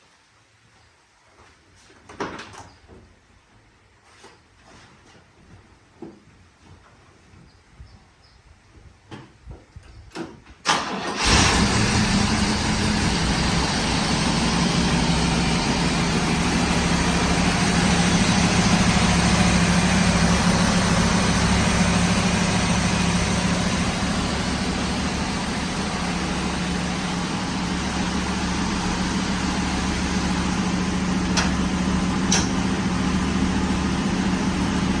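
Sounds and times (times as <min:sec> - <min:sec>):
car engine cranking and starting: 0:10.6 - 0:35.0.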